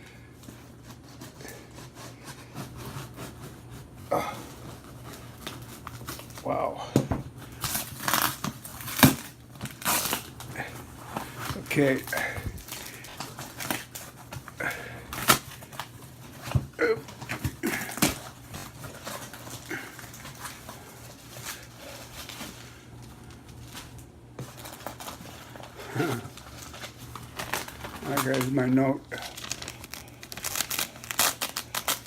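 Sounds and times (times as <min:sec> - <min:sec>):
packaging being handled: 0:00.4 - 0:06.6, 0:07.3 - 0:32.0.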